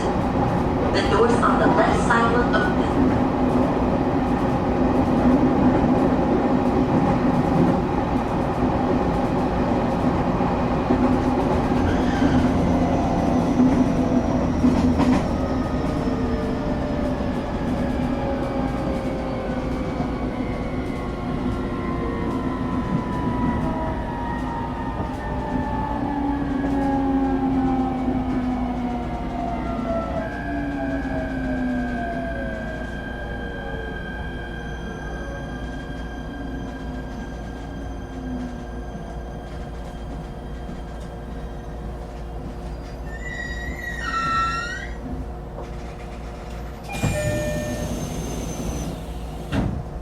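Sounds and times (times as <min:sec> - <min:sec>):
train carriage hum and rumble: 0:00.0 - 0:50.0
train whine tones sliding down: 0:42.7 - 0:45.1, 0:46.8 - 0:49.8.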